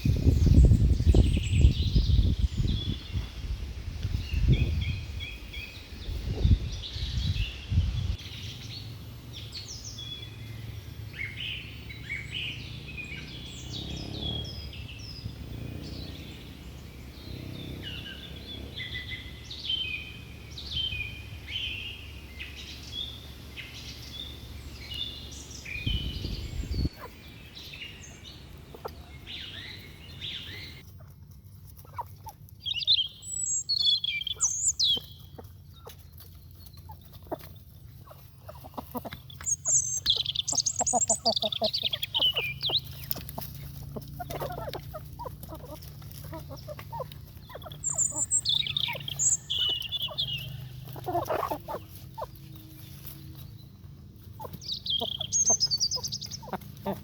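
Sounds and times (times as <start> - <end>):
low rumbles: 0.0 - 23.0
birds chirping: 0.0 - 57.0.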